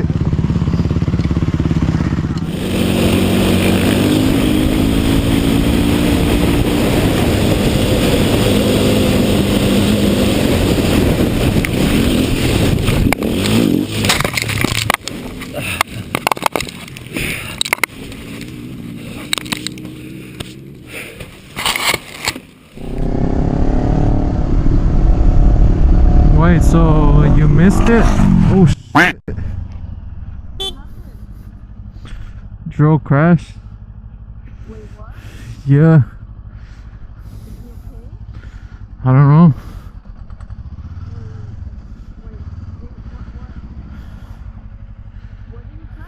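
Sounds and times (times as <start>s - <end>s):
motorcycle engine running: 0.0s - 46.0s
wind noise: 2.5s - 17.8s, 22.8s - 28.7s
loud low rumble: 22.8s - 32.7s.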